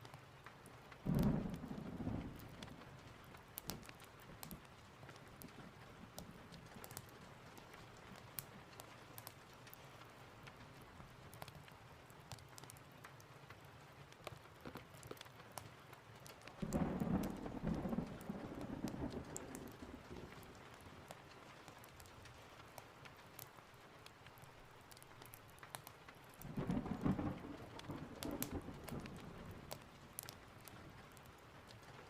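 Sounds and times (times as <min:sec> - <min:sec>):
steady rain: 0:00.0 - 0:32.0
wood fire crackling: 0:00.0 - 0:32.0
thunder clap rumbling: 0:01.0 - 0:03.1, 0:16.6 - 0:20.8, 0:26.4 - 0:30.8.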